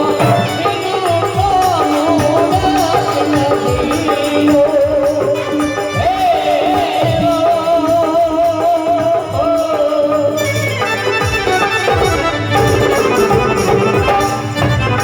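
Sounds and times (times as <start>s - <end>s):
drum rhythm: 0.0s - 15.0s
folk melody with heavy vibrato: 9.4s - 15.0s.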